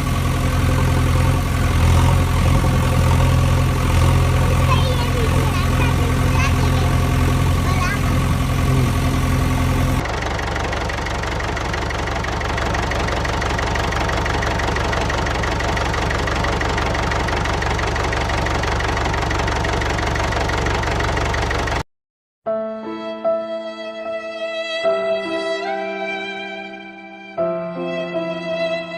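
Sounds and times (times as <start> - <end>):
engine pulsing: 0.0 - 21.8.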